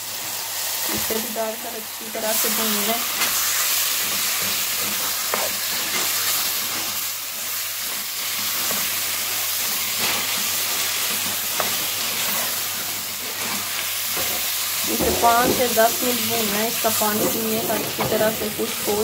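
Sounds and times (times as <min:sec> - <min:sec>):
meat sizzling in hot oil: 0:00.0 - 0:19.0
spatula scraping pan: 0:02.8 - 0:07.0.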